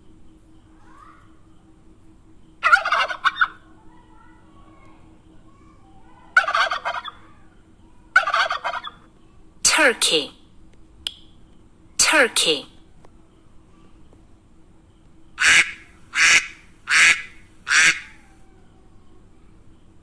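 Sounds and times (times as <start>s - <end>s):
turkey gobbling: 2.6s - 3.6s, 6.4s - 7.3s, 8.2s - 9.0s, 15.4s - 18.3s.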